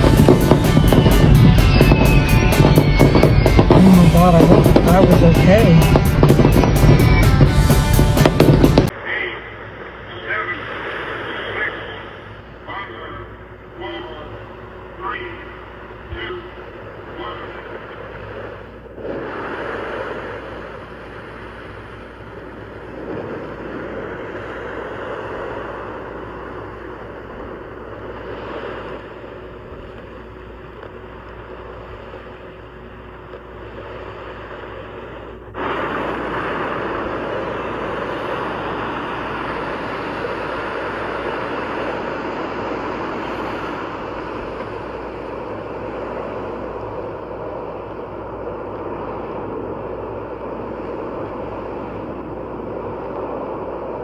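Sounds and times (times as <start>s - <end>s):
moving vehicle rumble and wind: 0.0s - 8.9s.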